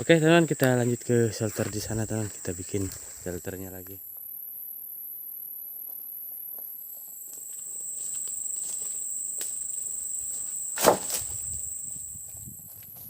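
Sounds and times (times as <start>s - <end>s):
insects buzzing: 0.0s - 13.0s
faint steps and rustles: 0.6s - 3.3s
sharp loud knock: 10.8s - 11.2s.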